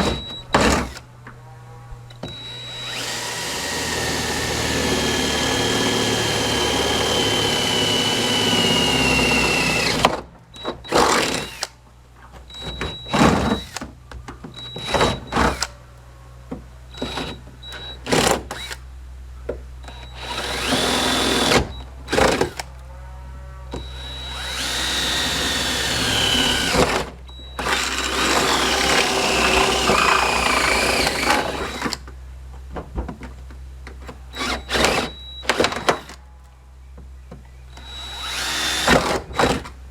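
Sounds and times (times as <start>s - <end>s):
power tool cutting sheet metal: 2.2s - 10.2s, 20.1s - 22.6s, 23.8s - 32.0s, 37.8s - 39.6s.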